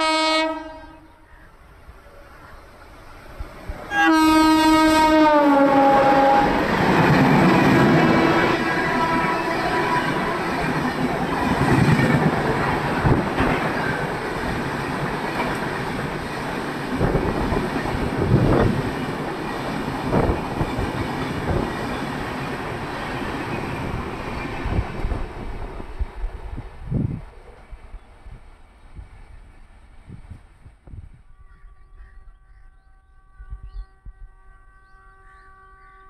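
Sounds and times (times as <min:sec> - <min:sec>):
train rolling past: 0:00.0 - 0:32.4
wheels clacking on rail joints: 0:06.7 - 0:25.9.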